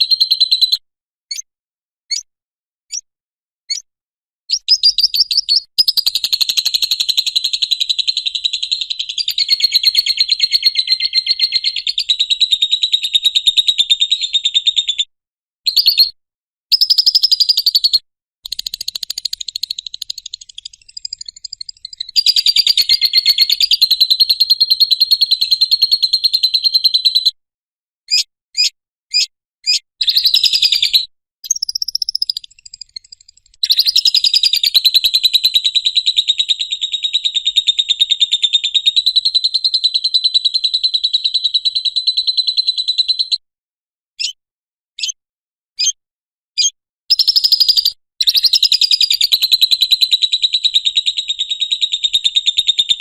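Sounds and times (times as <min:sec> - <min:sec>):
lovebird chattering: 0:04.5 - 0:12.2, 0:16.7 - 0:25.3, 0:28.1 - 0:35.6.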